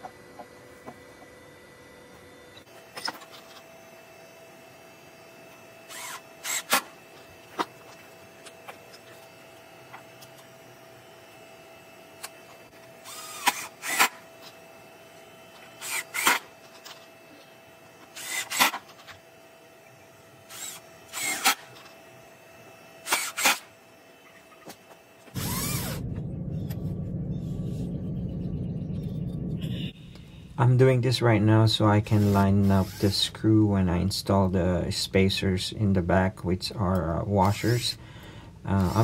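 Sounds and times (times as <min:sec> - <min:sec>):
cordless drill bursts: 0:04.2 - 0:15.0, 0:15.7 - 0:19.4, 0:20.3 - 0:24.0, 0:25.3 - 0:26.0, 0:32.1 - 0:33.4, 0:37.4 - 0:39.0
steady low rumble: 0:25.4 - 0:32.2.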